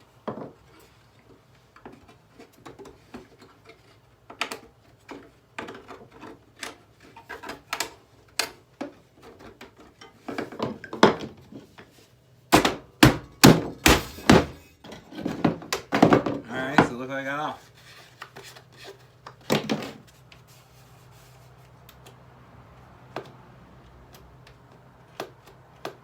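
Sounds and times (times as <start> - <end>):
heavy blows on plastic: 12.5 - 14.6.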